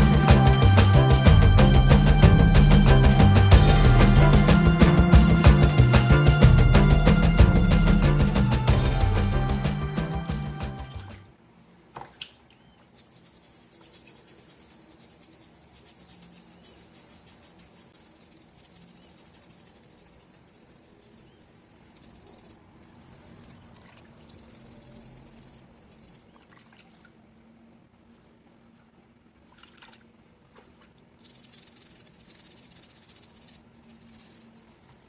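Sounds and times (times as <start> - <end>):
brush scrubbing: 0.0 - 11.1, 12.8 - 26.3, 30.5 - 35.0
background music: 0.0 - 11.2.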